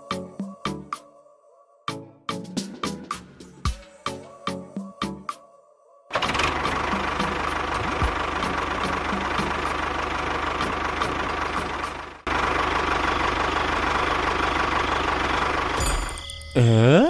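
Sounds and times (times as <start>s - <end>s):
engine running: 6.1s - 16.3s.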